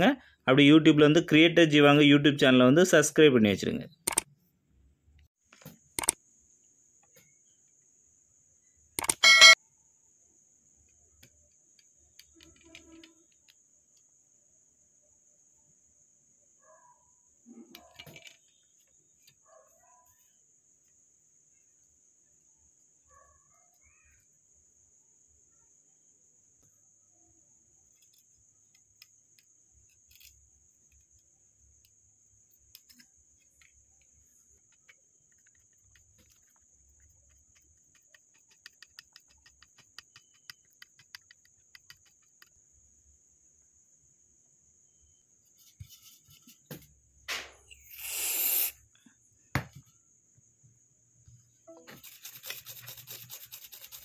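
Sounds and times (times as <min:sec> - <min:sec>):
small clicks: 0:04.0 - 0:04.3, 0:06.0 - 0:06.2, 0:09.0 - 0:09.5, 0:10.8 - 0:14.1, 0:27.9 - 0:31.2, 0:32.7 - 0:42.6
high-pitched chirring: 0:09.1 - 0:09.6.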